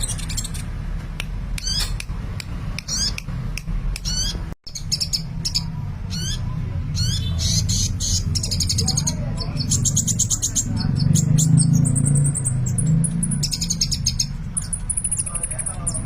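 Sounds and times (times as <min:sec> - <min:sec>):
sharp clicks: 0:00.1 - 0:04.3
sunbird squeaky warbling calls: 0:01.6 - 0:02.0, 0:02.8 - 0:03.2, 0:04.0 - 0:16.0.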